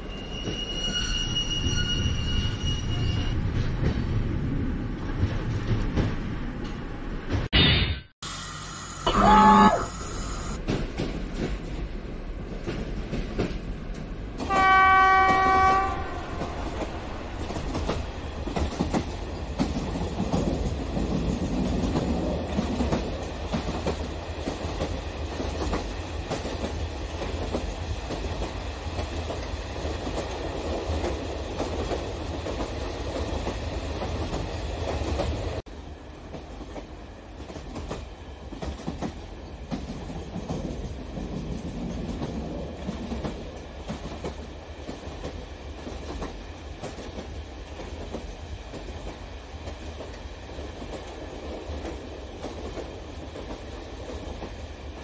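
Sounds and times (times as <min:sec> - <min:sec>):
train wheels rumbling on track: 0:00.0 - 0:07.5, 0:10.4 - 0:55.0
model train horn: 0:08.8 - 0:10.6, 0:14.5 - 0:16.5.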